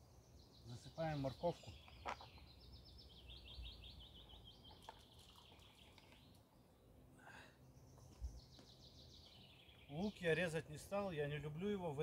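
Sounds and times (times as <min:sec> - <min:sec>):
songbird trilling: 0:00.0 - 0:06.4, 0:07.8 - 0:10.5.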